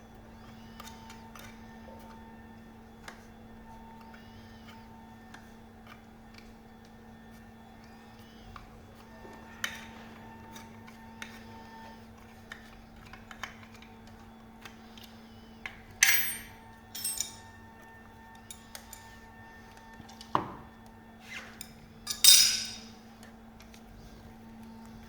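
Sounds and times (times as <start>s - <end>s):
faint steady hum: 14.8s - 19.9s
hand tools clinking: 16.0s - 17.4s, 22.1s - 23.0s.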